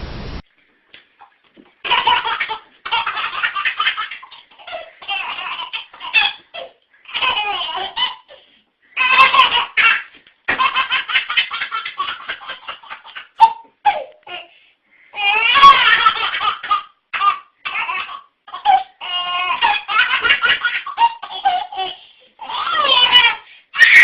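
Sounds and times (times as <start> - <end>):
young child laughing: 9.0 - 14.4.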